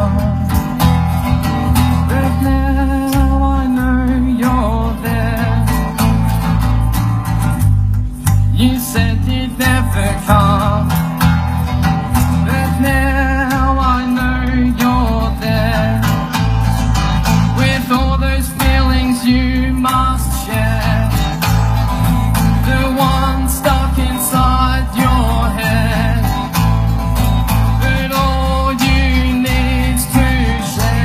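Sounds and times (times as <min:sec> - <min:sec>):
bass line: 0:00.0 - 0:31.0
strummed guitar: 0:00.0 - 0:31.0
person singing: 0:27.8 - 0:31.0.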